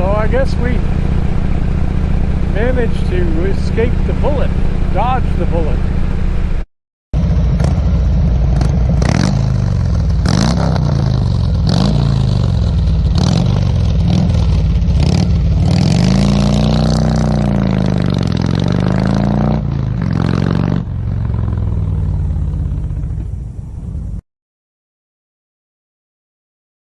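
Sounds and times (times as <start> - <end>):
motorcycle engine running: 0.0 - 24.2
road and wind noise: 0.0 - 24.2.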